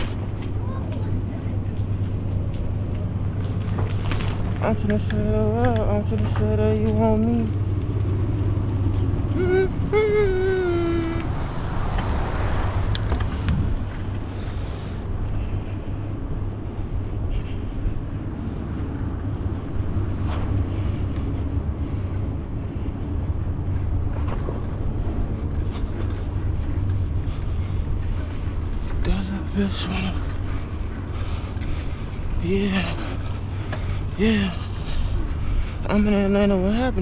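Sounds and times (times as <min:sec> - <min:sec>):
vehicle road noise rumble: 0:00.0 - 0:37.0
light clicks: 0:03.8 - 0:06.5
drawn-out vocal sound: 0:09.0 - 0:12.9, 0:27.2 - 0:37.0.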